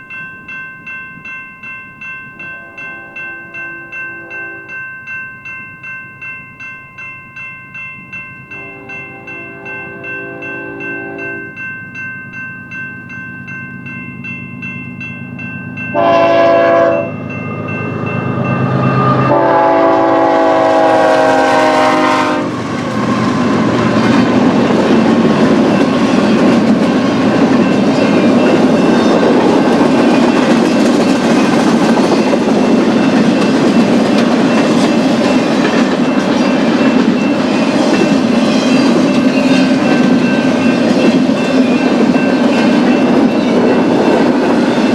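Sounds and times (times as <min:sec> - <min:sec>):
train bell ringing: 0:00.0 - 0:44.9
locomotive air horn: 0:08.6 - 0:11.4, 0:16.0 - 0:17.1, 0:19.3 - 0:22.6
train rail noise and wheel clatter: 0:13.7 - 0:44.9.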